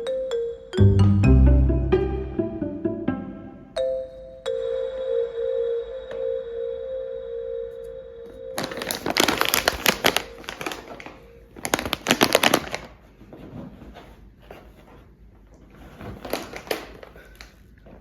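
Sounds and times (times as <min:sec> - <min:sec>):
chime note: 0:00.8 - 0:08.6
faint crackles: 0:08.6 - 0:13.0
paper crinkling and rustling: 0:08.6 - 0:15.1, 0:15.7 - 0:18.0.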